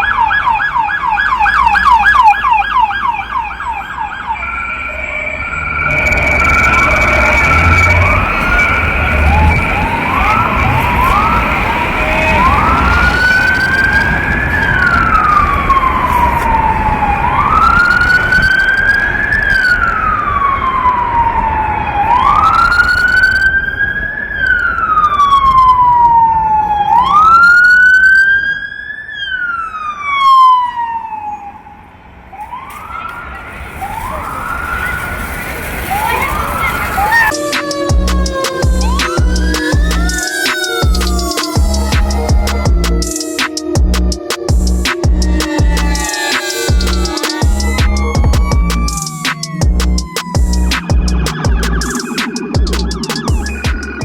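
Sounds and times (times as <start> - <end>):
electronic siren yelp and wail: 0.0 - 54.0
low engine rumble: 37.3 - 54.0.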